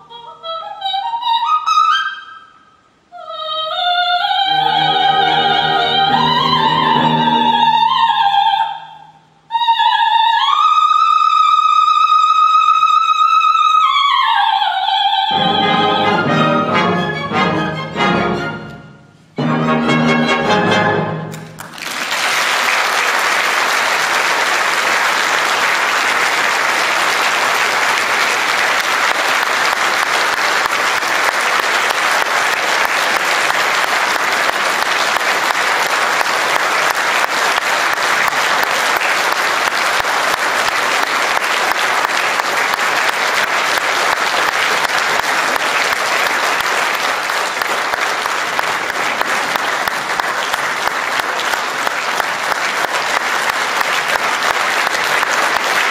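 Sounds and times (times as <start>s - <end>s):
audience applauding: 4.5s - 8.3s, 21.3s - 55.9s.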